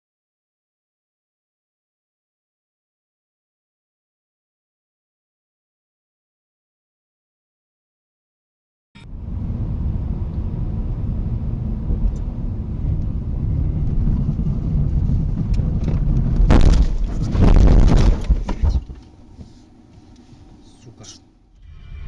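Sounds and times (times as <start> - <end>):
wind noise: 9.0 - 19.6, 21.6 - 22.0
car rumbling: 9.0 - 22.0
road noise: 9.0 - 22.0.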